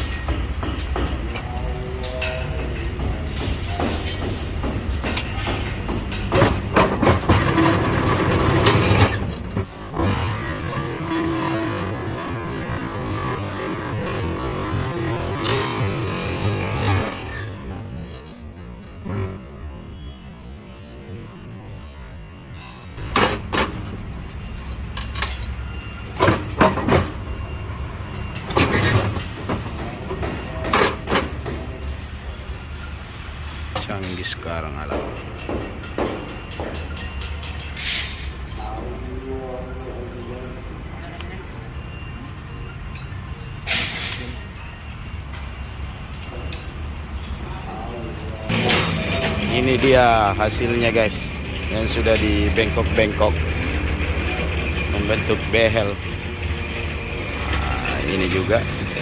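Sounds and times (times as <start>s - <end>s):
steel bar clanking against machine: 0.0s - 17.8s
metal clanks: 0.0s - 19.7s, 23.0s - 32.9s, 33.7s - 39.0s, 42.9s - 59.0s.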